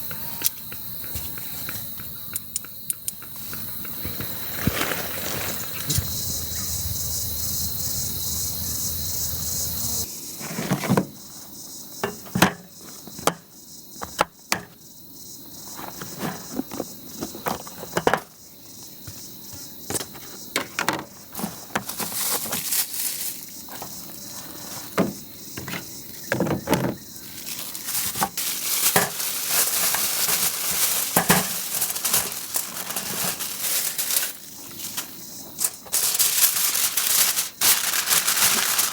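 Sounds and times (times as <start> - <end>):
crickets chirping: 0.0 - 38.9
campfire crackling: 3.3 - 9.8.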